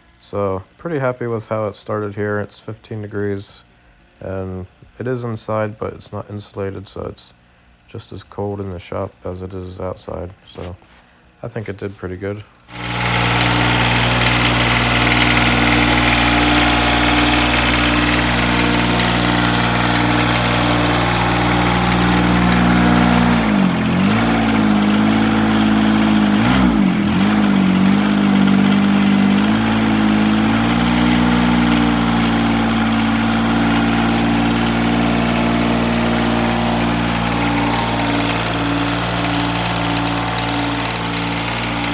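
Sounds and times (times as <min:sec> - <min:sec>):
diesel tractor engine idling: 0:12.7 - 0:41.9.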